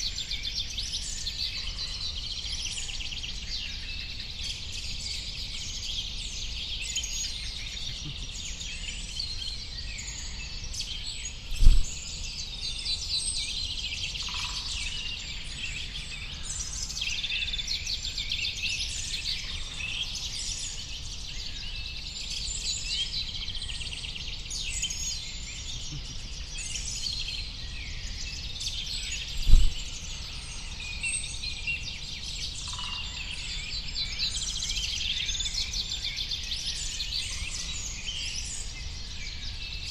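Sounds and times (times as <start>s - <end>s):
songbirds chirping and trilling: 0.0s - 39.9s
low thumps: 11.5s - 12.0s, 29.4s - 29.9s.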